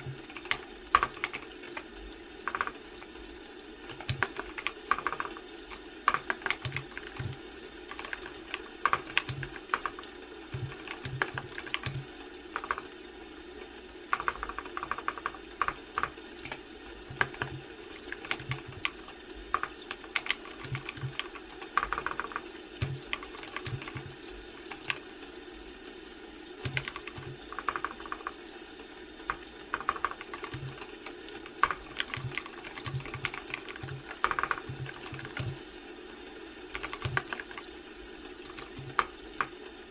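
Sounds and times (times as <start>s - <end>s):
typing on keyboard: 0.0s - 3.2s, 3.8s - 25.2s, 26.6s - 35.8s, 36.6s - 39.8s
faint background hum: 0.0s - 39.9s.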